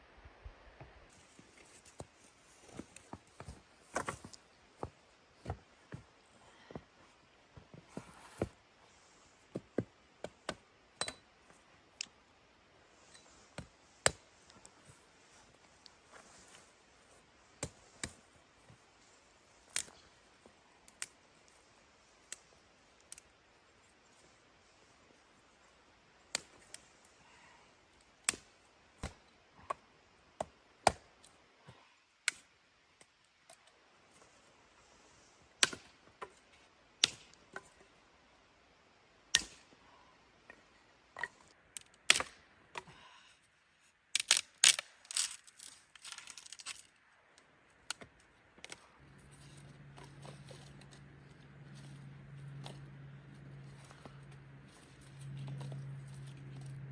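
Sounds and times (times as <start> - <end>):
sharp cracks and clicks: 44.2 - 46.8.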